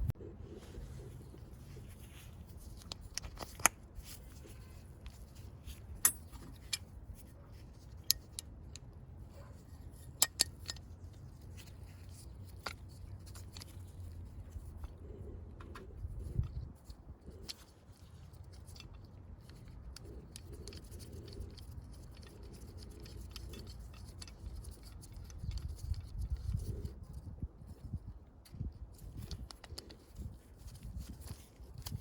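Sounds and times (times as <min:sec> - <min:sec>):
low steady hum: 0:00.0 - 0:32.0
metallic clicks and clinks: 0:02.6 - 0:08.9, 0:09.5 - 0:27.2.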